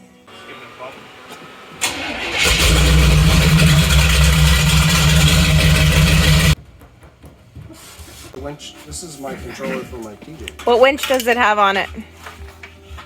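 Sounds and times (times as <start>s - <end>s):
electric winch motor humming: 1.8s - 6.6s.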